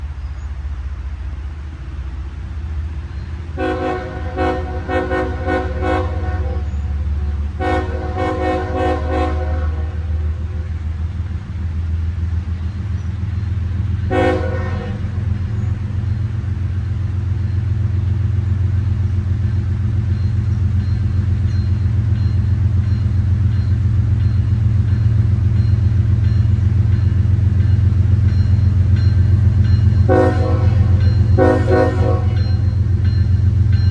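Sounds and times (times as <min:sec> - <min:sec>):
locomotive engine rumble: 0:00.0 - 0:33.9
locomotive horn blasts: 0:03.6 - 0:10.3, 0:14.1 - 0:15.2, 0:29.6 - 0:32.9.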